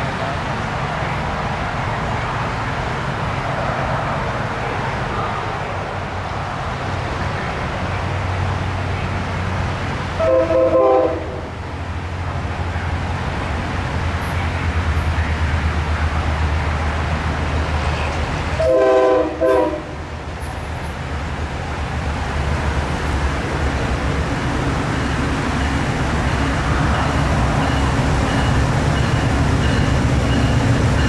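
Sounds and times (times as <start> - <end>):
train rumbling: 0.0 - 31.0
locomotive horn blast: 10.2 - 11.6, 18.6 - 20.0.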